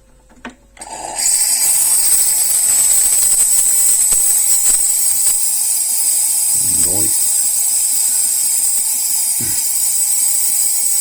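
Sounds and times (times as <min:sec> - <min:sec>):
espresso machine steam wand hissing: 0:00.8 - 0:11.0.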